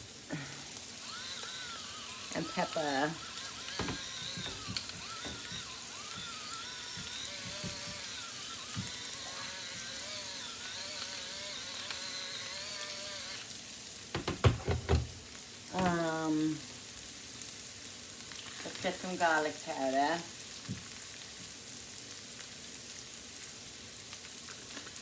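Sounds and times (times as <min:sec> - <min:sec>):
mushrooms sizzling in a pan: 0:00.0 - 0:14.2, 0:15.1 - 0:25.0
utensil knocking on cookware: 0:14.2 - 0:15.2.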